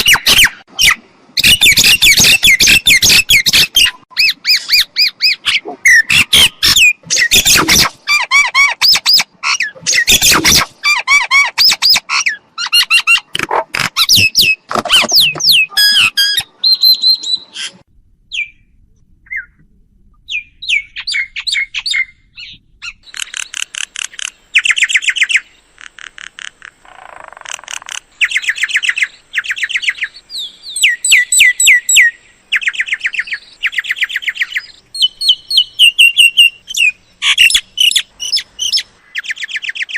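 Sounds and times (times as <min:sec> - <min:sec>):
myna squawking and whistling: 0:00.0 - 0:13.3.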